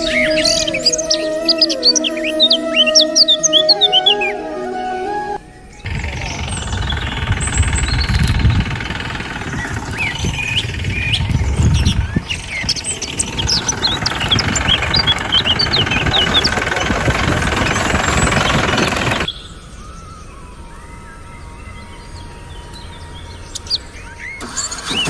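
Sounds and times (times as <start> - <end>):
birds chirping: 0.0 - 25.0
loud steady noisy hum: 5.9 - 19.3.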